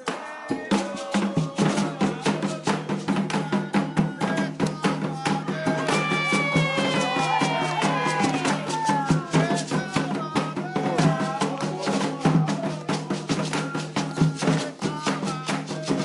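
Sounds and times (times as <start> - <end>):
fast hand drumming: 0.0 - 16.0
people singing: 0.0 - 16.0.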